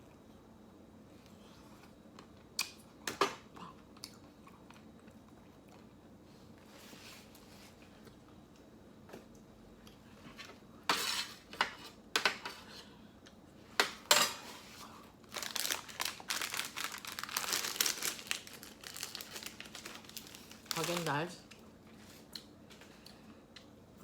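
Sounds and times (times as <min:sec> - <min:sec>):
plastic wrapper crinkling: 0:15.2 - 0:22.3
plastic wrapper rustling: 0:15.2 - 0:22.3.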